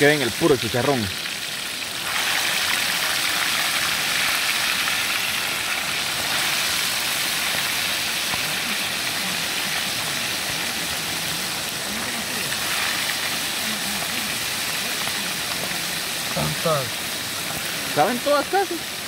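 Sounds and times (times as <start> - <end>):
fish frying in hot oil: 0.0 - 19.0.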